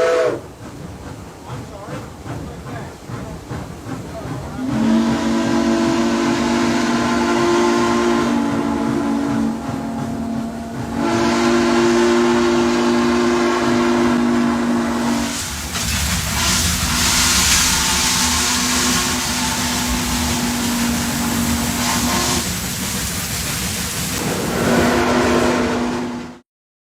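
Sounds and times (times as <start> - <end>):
steam locomotive chime whistle: 0.0 - 0.4, 4.6 - 15.4, 16.4 - 22.5, 24.3 - 26.4
steam hissing: 0.0 - 26.3.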